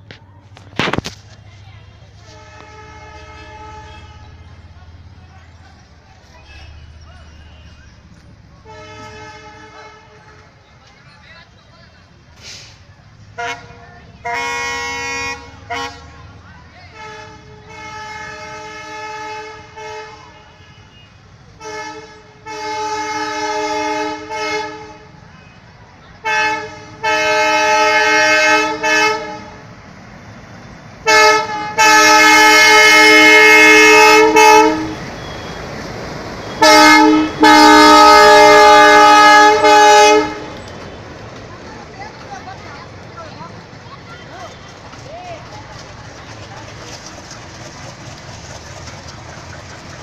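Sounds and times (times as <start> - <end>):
train horn toots and blasts: 2.2 - 4.6, 8.6 - 10.6, 13.3 - 16.2, 16.9 - 25.2, 26.2 - 29.6, 31.0 - 35.4, 36.5 - 40.6.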